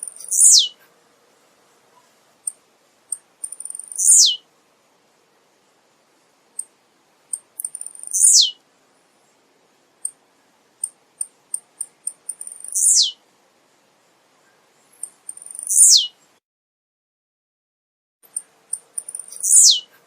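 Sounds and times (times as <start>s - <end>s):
bird song with high ticks: 0.0s - 0.9s, 2.4s - 4.4s, 6.6s - 8.6s, 10.0s - 13.2s, 14.4s - 16.4s, 18.2s - 20.0s.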